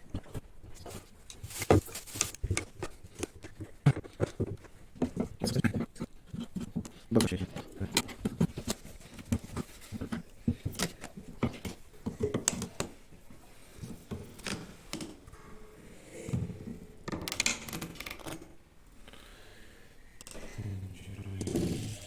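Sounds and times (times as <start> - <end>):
scraping rustle: 0.7 - 3.5.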